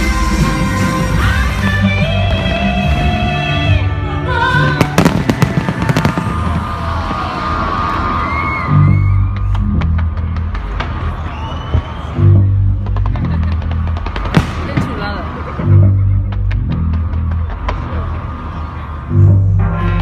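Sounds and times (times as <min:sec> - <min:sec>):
loud music with sung notes: 0:00.0 - 0:13.4, 0:14.7 - 0:20.0
fireworks bangs and cracks: 0:04.8 - 0:08.2, 0:09.6 - 0:12.1, 0:12.8 - 0:15.6.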